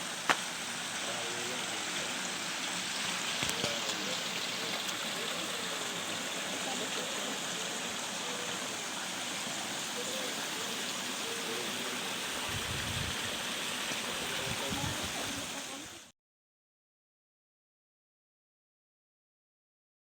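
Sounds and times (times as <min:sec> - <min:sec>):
running water rushing: 0:00.0 - 0:16.1
faint voices: 0:01.0 - 0:13.2, 0:13.9 - 0:16.1.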